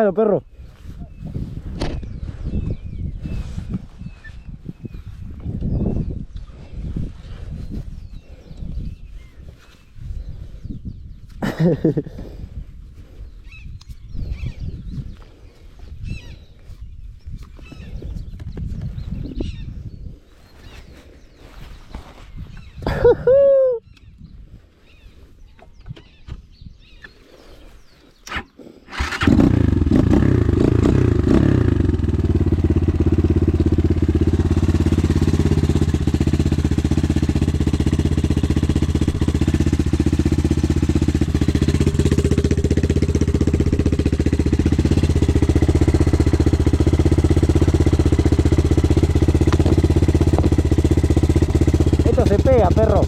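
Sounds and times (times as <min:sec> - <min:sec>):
motorcycle engine starting and idling: 0:28.2 - 0:53.0.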